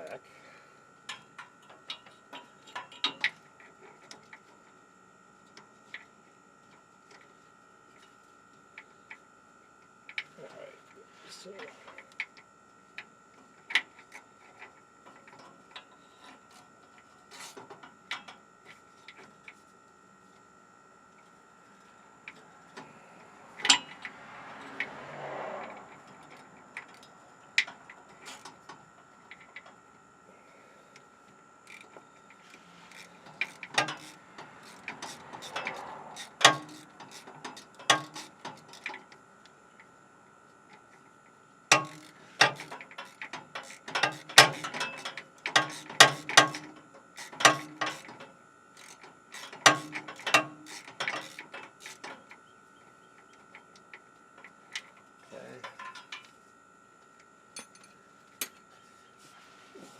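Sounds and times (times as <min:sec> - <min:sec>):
wrench and ratchet clicking on bolts: 0:31.7 - 0:39.0, 0:41.7 - 0:48.2, 0:48.8 - 0:52.4.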